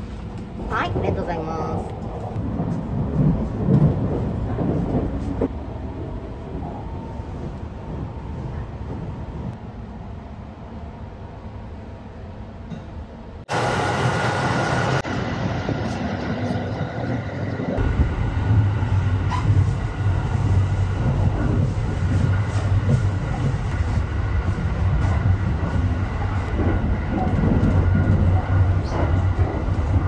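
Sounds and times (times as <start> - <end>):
train rumble and rail noise: 0.0 - 30.0.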